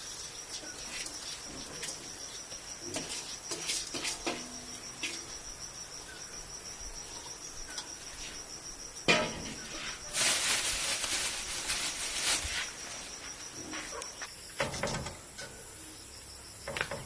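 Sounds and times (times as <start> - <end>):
hissing rustling noise: 0.0 - 5.5, 9.4 - 14.0
insects trilling: 0.0 - 17.0.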